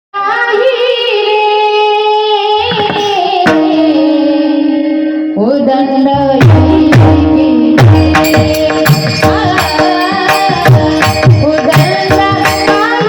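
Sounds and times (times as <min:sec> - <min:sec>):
woman singing: 0:00.2 - 0:13.0
sharp percussive stroke: 0:07.8 - 0:13.0.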